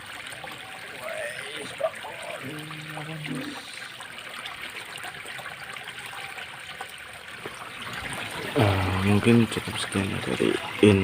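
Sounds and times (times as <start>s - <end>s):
water trickling in a ditch: 0.0s - 11.0s.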